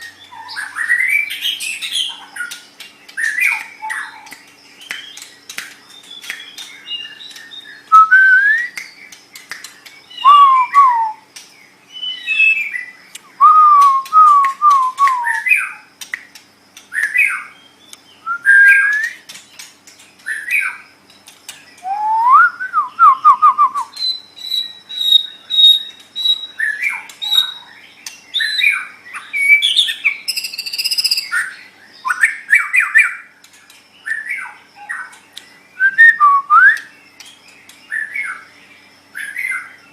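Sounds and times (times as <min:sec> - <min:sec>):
bird singing whistled phrases: 0:05.9 - 0:09.2, 0:10.0 - 0:11.3, 0:11.9 - 0:15.8, 0:16.9 - 0:19.3, 0:21.8 - 0:27.6, 0:28.3 - 0:33.3, 0:35.7 - 0:37.0.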